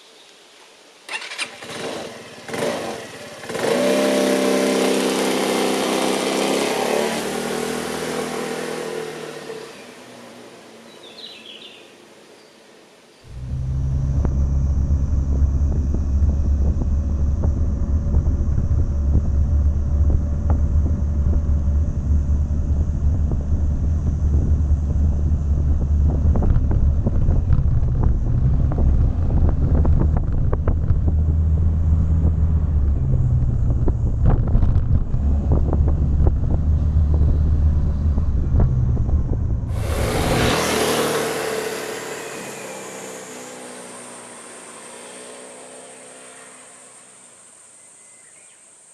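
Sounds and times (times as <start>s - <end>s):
scooter engine running: 1.2s - 9.8s, 13.3s - 47.3s
loud bright hiss: 39.7s - 48.9s.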